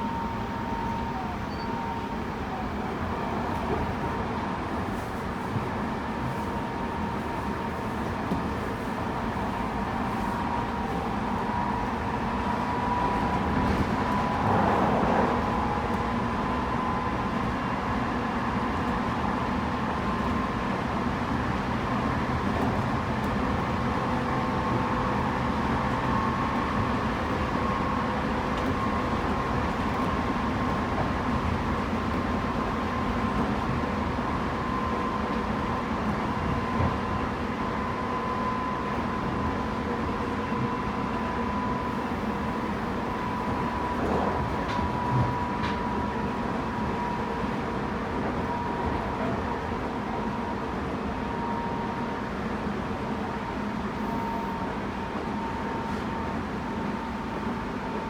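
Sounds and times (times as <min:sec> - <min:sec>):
train motor and inverter tones: 0:00.0 - 0:05.0, 0:05.9 - 0:58.0
wheels rumbling on rail: 0:00.0 - 0:58.0
train rushing: 0:10.9 - 0:19.1, 0:41.4 - 0:50.9.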